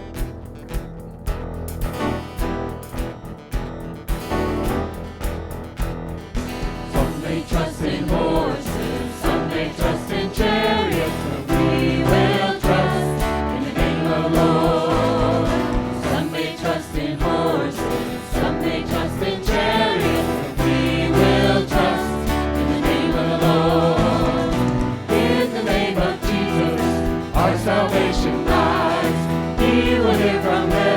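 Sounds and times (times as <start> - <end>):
band playing worship music: 4.0 - 30.9
group of voices singing: 6.8 - 30.9.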